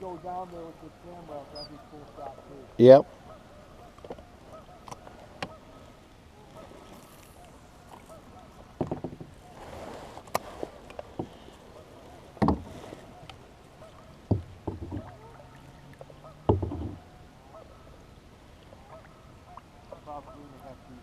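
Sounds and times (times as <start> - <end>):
geese honking faintly: 0.0 - 10.7, 11.3 - 21.0
water swishing: 0.0 - 21.0
knocks against boat hull: 8.8 - 9.4, 12.4 - 12.7, 14.3 - 15.1, 16.4 - 17.0.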